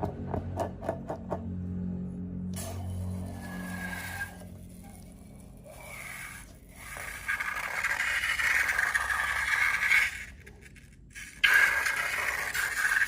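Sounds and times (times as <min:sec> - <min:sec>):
slime scraping: 0:03.4 - 0:13.0.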